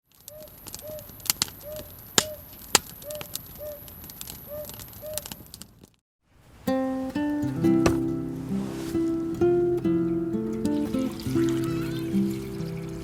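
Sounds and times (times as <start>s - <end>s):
campfire crackling and popping: 0.2s - 6.0s.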